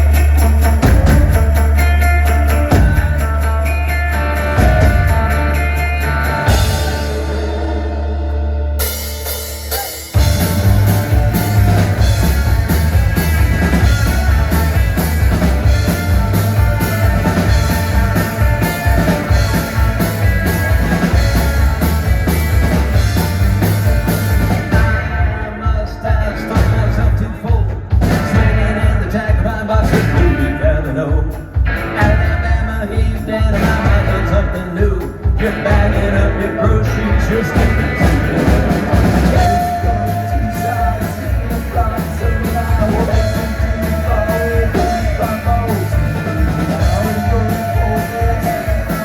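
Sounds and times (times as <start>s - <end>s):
drum kit beat: 0.0s - 49.0s
rock band playing live: 0.0s - 49.0s.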